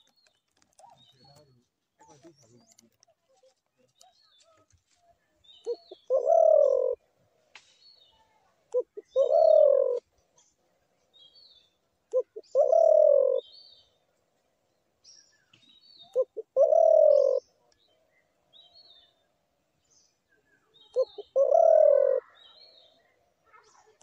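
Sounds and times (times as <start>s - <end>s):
small birds chirping: 0.0s - 24.0s
dove cooing: 5.6s - 7.1s, 8.7s - 10.1s, 12.1s - 13.5s, 16.0s - 17.6s, 20.9s - 22.5s.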